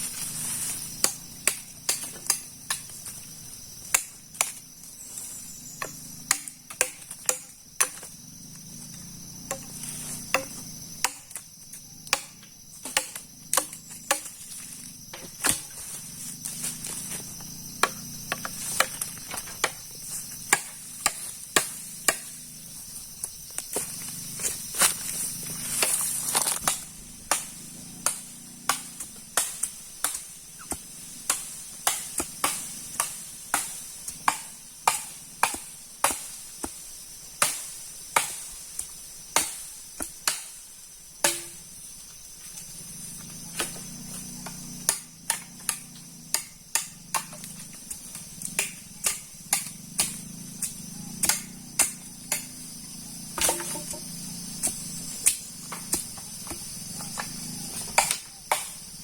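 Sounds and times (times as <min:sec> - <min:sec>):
high insect drone: 0:00.0 - 0:59.0
sharp knocks on wood: 0:41.2 - 0:41.6.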